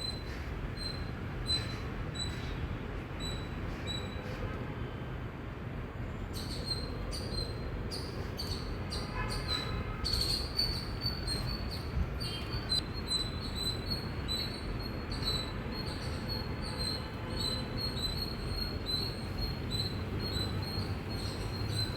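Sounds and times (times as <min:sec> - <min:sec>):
squirrel chirping: 0:06.4 - 0:21.9.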